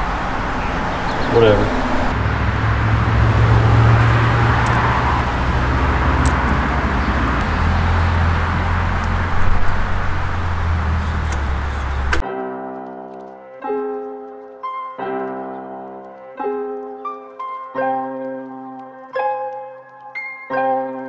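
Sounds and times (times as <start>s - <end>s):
car engine idling: 0.0s - 12.2s
soft piano music: 11.9s - 21.0s.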